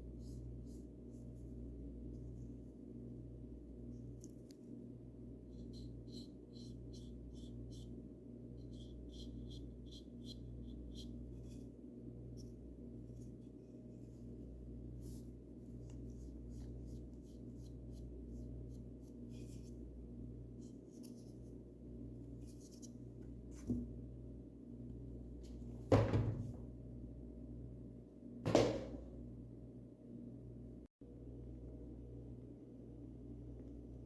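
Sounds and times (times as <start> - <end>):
paintbrush strokes: 8.6 - 23.9.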